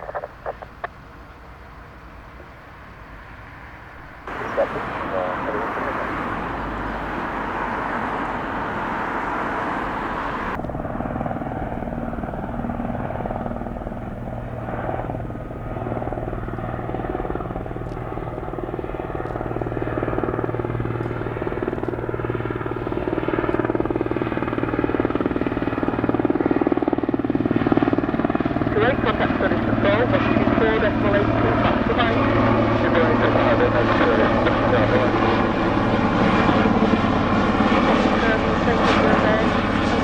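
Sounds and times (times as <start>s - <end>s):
helicopter rotors and turbines: 0.0s - 40.0s
broad rushing noise: 4.0s - 10.7s.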